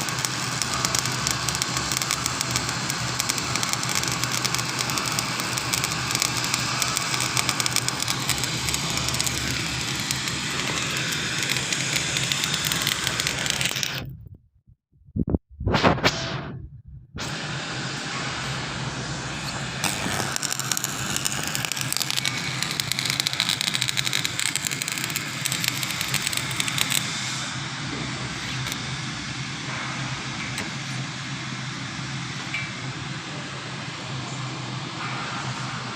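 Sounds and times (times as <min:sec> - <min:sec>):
welding arc crackling: 0:00.0 - 0:14.1, 0:18.5 - 0:27.5, 0:28.3 - 0:28.8
low hum: 0:02.4 - 0:23.6.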